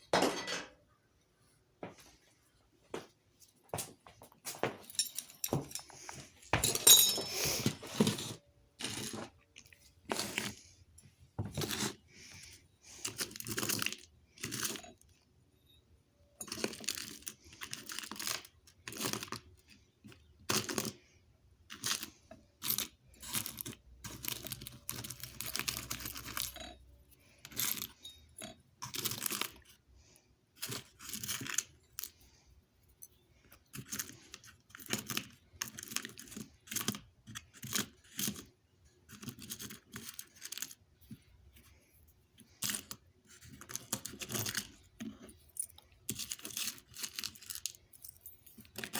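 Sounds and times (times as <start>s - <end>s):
rustling and crinkling handling noise: 1.4s - 14.6s.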